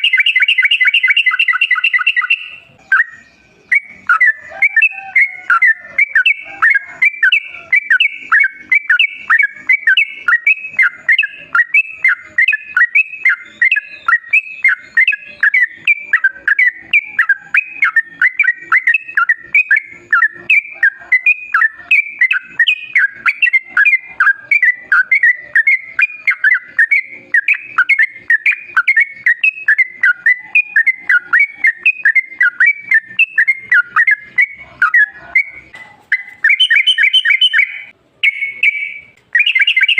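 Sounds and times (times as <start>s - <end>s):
bulbul singing whistled notes: 0.0s - 39.9s.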